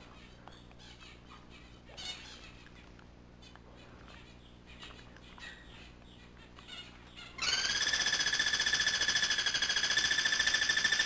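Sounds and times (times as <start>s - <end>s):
birds chirping faintly: 0.0s - 11.0s.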